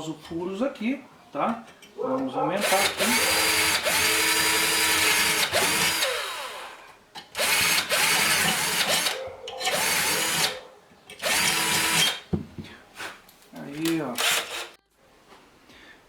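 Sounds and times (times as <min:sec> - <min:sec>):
electric drill whining: 0:02.6 - 0:06.8, 0:07.4 - 0:10.6, 0:11.2 - 0:12.3, 0:14.2 - 0:14.8.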